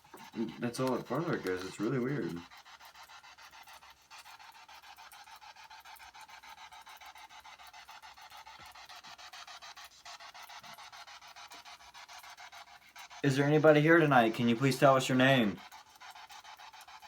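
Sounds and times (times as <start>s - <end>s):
chopped radio static hiss: 13.2s - 15.6s.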